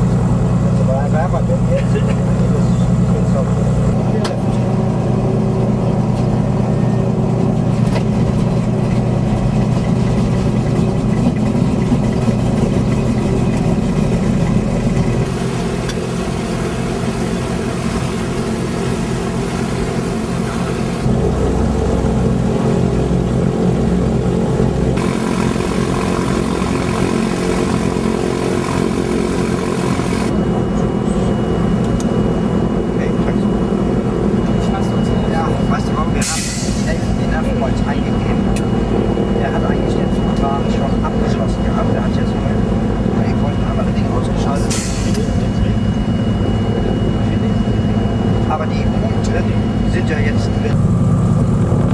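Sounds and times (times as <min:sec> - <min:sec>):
piston aircraft engines droning: 0:00.0 - 0:51.9.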